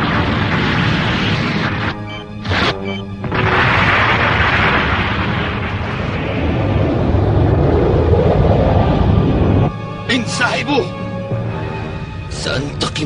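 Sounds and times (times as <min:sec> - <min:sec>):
background music: 0:00.0 - 0:06.6, 0:08.5 - 0:13.0
cartoon explosion rumbling: 0:02.5 - 0:09.6.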